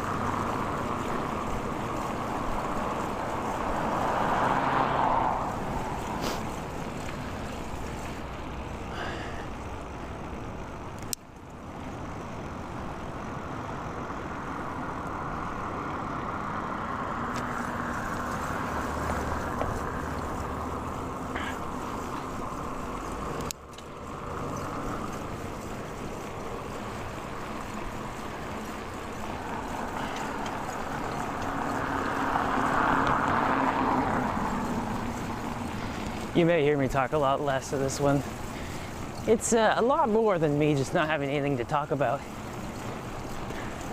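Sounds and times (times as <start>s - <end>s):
bicycle road noise: 0.0s - 43.9s
motor vehicles passing: 0.0s - 43.9s.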